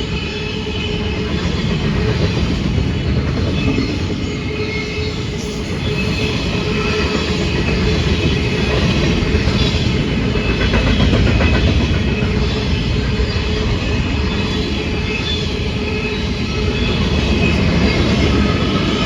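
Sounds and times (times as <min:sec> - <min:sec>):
freight train rumbling: 0:00.0 - 0:19.0.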